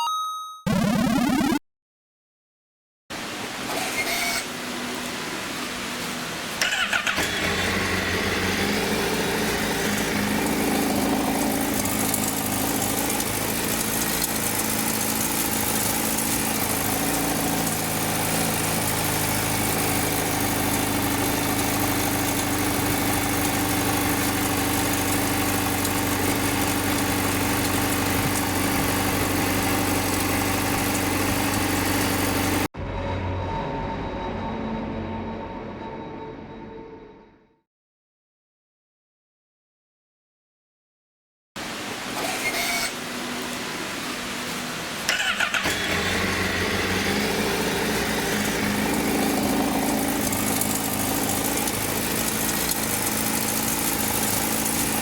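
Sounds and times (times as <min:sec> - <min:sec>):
motorcycle engine idling: 0:06.7 - 0:32.7, 0:45.1 - 0:55.0.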